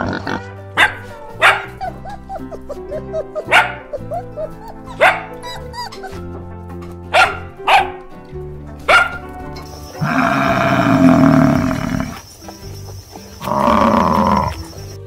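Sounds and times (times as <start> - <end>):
background music: 0.0 - 15.0
puppy barking: 0.8 - 6.3, 7.1 - 8.1, 8.8 - 9.3.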